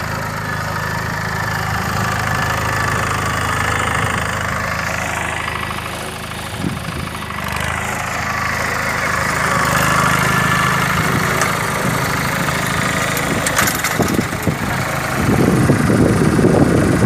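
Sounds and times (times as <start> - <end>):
tractor diesel engine running: 0.0 - 17.0
rattle of clicks: 11.4 - 11.6, 13.2 - 14.4.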